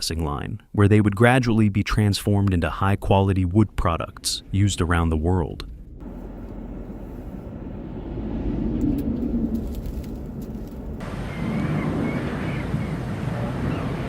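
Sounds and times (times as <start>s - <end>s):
truck engine and road rumble: 4.0s - 14.0s.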